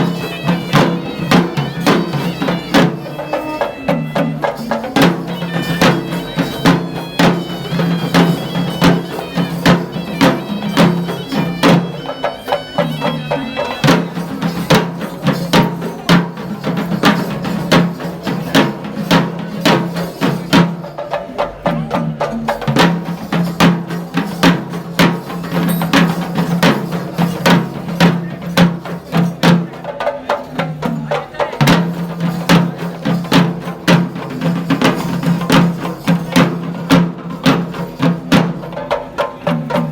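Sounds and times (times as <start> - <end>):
shrill wind instrument melody: 0.0 - 15.5
rapid dense drumming: 0.0 - 39.9.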